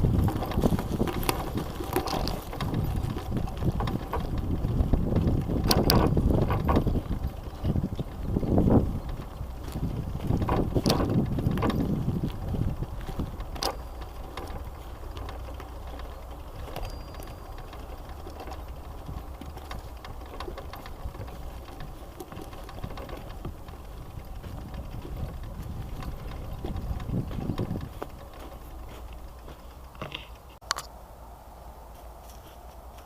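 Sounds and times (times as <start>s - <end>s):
bicycle drivetrain whirring: 0.0s - 30.6s
bicycle tyres rolling: 0.0s - 30.6s
single click: 30.6s - 30.9s.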